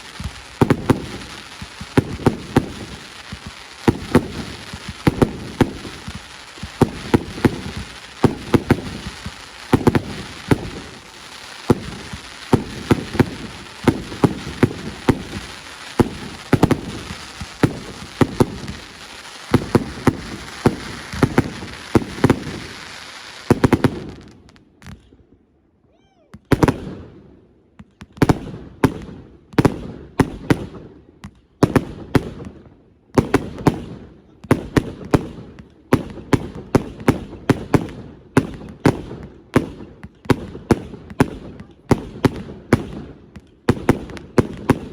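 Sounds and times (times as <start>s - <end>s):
fireworks crackling hiss: 0.0s - 25.1s
fireworks bangs: 0.0s - 25.2s, 26.4s - 27.2s, 33.2s - 44.9s.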